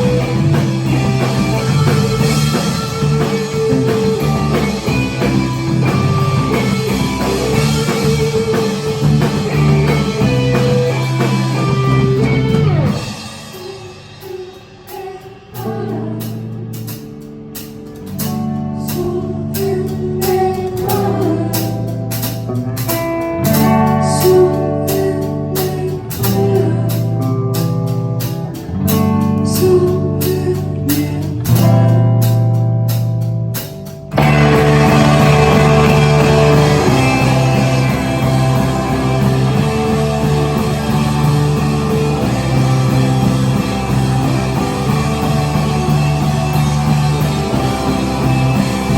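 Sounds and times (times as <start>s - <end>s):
indie rock band playing live: 0.0s - 48.9s
repeated drum hits: 31.5s - 48.9s.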